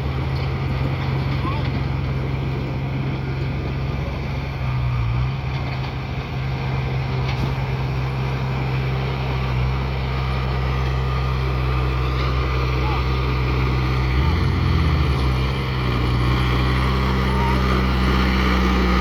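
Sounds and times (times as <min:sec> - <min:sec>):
bulldozer engine running: 0:00.0 - 0:19.0.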